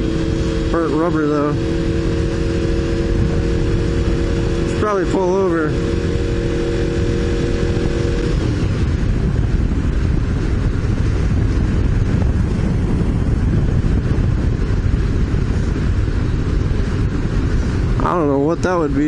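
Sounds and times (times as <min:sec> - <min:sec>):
motorcycle engine: 0:00.0 - 0:19.0
wind buffeting helmet: 0:00.0 - 0:19.0.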